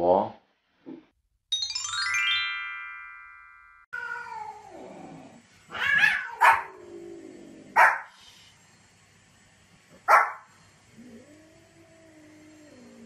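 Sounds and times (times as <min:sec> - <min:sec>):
chiming jingle: 0:01.5 - 0:03.9
dog barking sharply: 0:07.8 - 0:08.1, 0:10.1 - 0:10.4.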